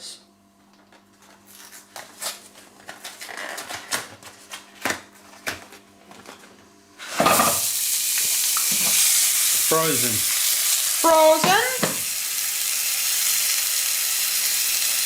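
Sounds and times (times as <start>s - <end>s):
patties sizzling in frying pan: 7.1s - 15.0s.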